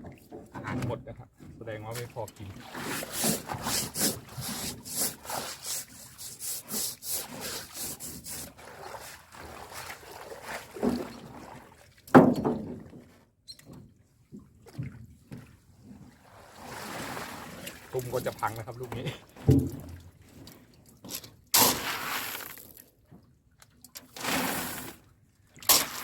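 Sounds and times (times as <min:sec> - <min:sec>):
water splashing: 0:01.9 - 0:11.9, 0:24.1 - 0:25.0, 0:25.7 - 0:26.0
thump: 0:12.2 - 0:12.8, 0:19.5 - 0:19.9
knock on boat: 0:19.4 - 0:20.0.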